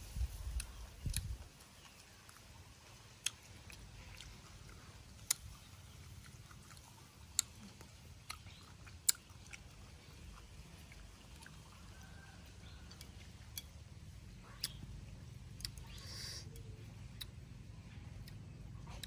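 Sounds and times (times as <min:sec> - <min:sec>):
person chewing crunchy food: 0:00.6 - 0:14.8.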